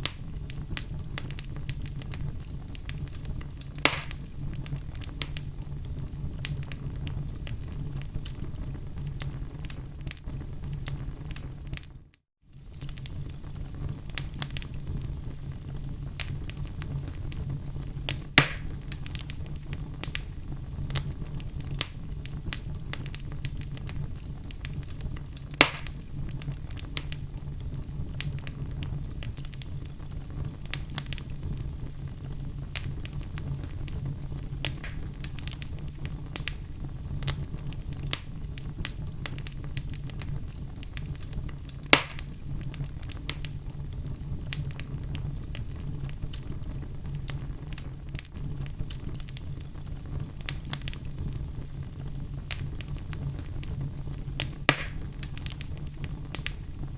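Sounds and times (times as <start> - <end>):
fire crackling: 0.0 - 56.9
low rumble of flame: 0.0 - 56.9
sharp loud pops of logs: 3.9 - 4.2, 18.4 - 18.7, 25.6 - 25.9, 54.7 - 55.0.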